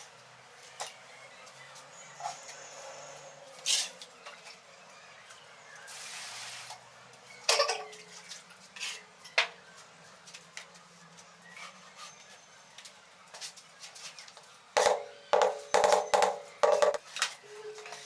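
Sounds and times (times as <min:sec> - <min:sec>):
short hiss or scrape: 0:05.9 - 0:06.8.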